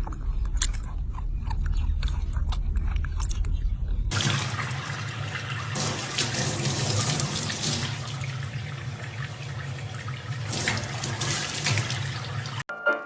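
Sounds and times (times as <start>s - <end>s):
running water: 4.1s - 12.7s.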